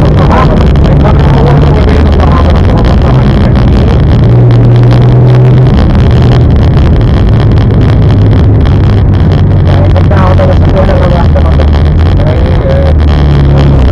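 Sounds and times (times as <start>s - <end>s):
car engine running: 0.0s - 13.9s
road noise: 0.0s - 13.9s.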